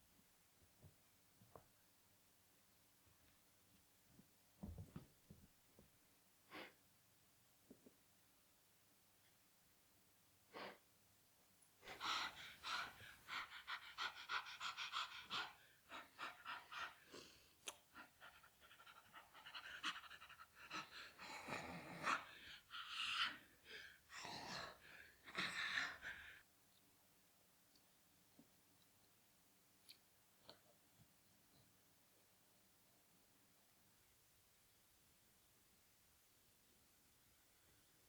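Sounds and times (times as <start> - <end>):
rapid panting: 11.9 - 21.4.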